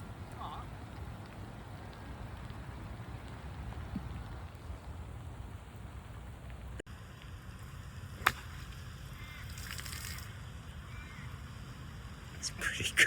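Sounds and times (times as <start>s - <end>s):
rain: 0.0s - 13.0s
wind: 0.0s - 13.0s
golf club striking ball: 8.1s - 8.8s.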